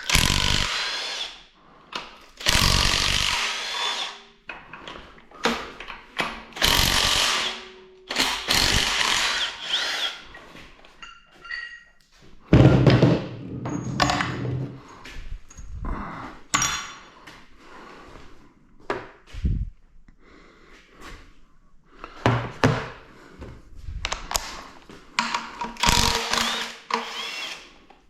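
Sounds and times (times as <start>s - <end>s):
impact wrench running: 0.0s - 1.3s, 2.4s - 4.2s, 6.6s - 10.2s, 25.8s - 27.7s.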